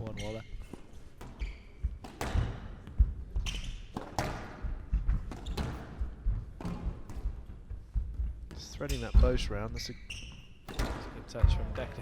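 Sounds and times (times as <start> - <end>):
shoes moving on court floor: 0.0 - 12.0
squash ball cracking off rackets: 2.0 - 2.8, 3.9 - 6.0.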